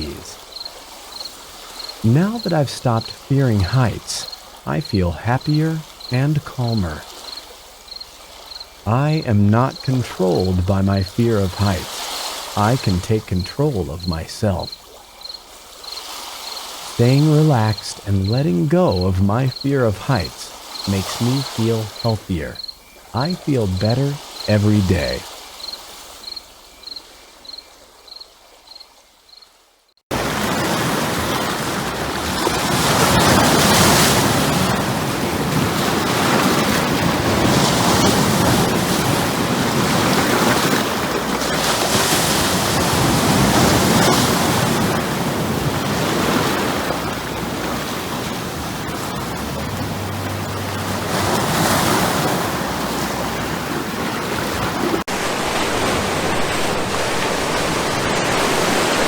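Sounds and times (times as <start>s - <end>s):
cricket chirping: 0.0s - 12.8s, 13.9s - 29.6s
ocean waves breaking: 0.0s - 26.3s, 30.1s - 59.0s.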